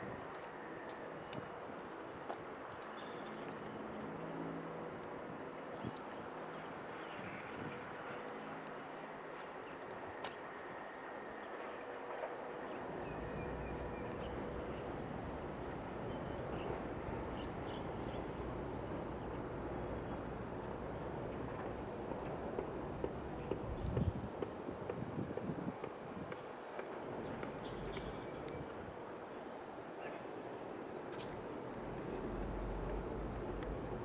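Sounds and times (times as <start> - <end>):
insects trilling: 0.0 - 34.0
locomotive rumbling: 12.8 - 24.3, 31.3 - 34.0.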